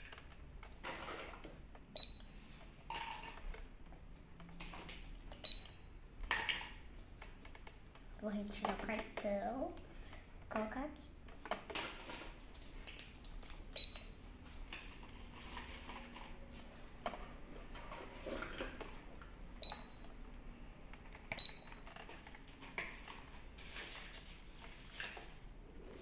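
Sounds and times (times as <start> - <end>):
plastic toys clicking and rustling: 0.0 - 1.9, 2.6 - 5.4, 6.2 - 13.6, 17.8 - 19.4, 20.9 - 26.0.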